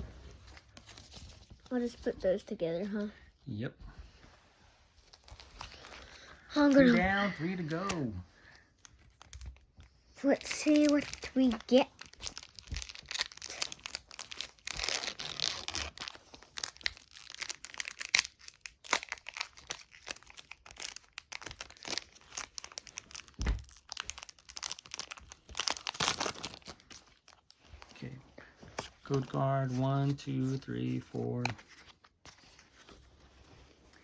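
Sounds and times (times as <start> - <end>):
foil wrapper tearing and crinkling: 10.3 - 27.4.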